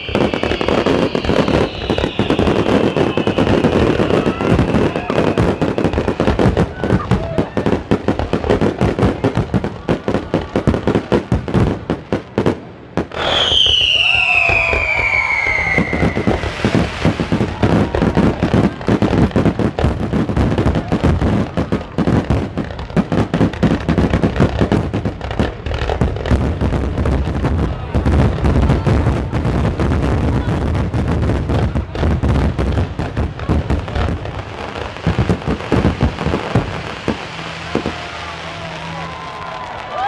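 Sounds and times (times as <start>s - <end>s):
falling firework whistle: 0.0s - 7.7s, 13.0s - 19.5s, 34.7s - 40.0s
fireworks bursting: 0.0s - 40.0s.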